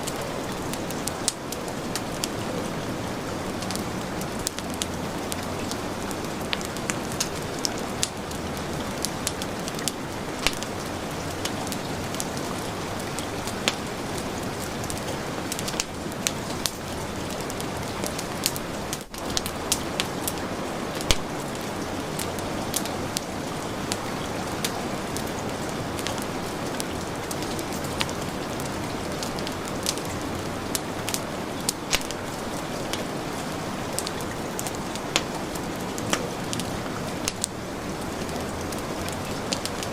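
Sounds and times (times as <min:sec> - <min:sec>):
heavy rain hissing: 0:00.0 - 0:39.9
wood fire crackling: 0:00.0 - 0:39.9.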